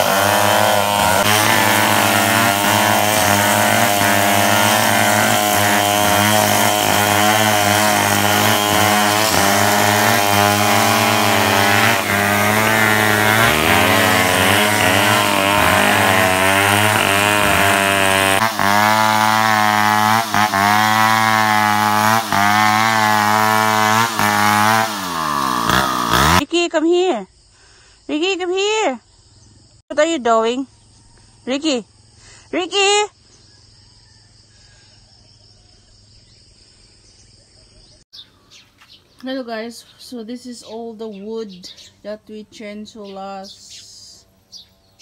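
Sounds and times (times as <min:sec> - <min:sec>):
chainsaw cutting wood: 0:00.0 - 0:26.5.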